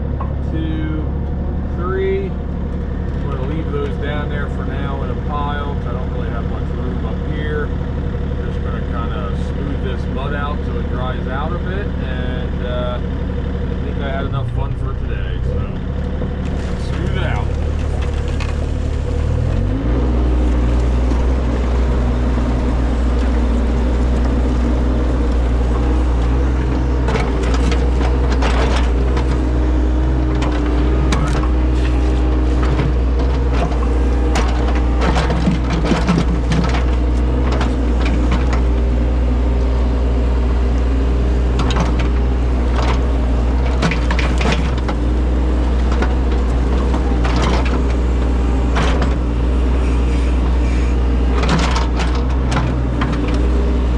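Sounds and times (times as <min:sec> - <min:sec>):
earthmoving machine engine: 0:00.0 - 0:53.9
bucket scraping dirt and stones: 0:16.4 - 0:19.4.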